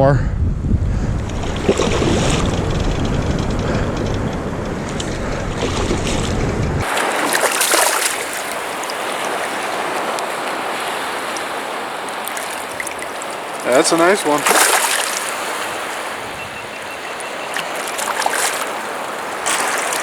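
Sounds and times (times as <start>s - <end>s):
low rumble: 0.0s - 6.8s
wind buffeting microphone: 0.0s - 20.0s
water splashing: 5.6s - 20.0s
rushing water: 6.8s - 20.0s.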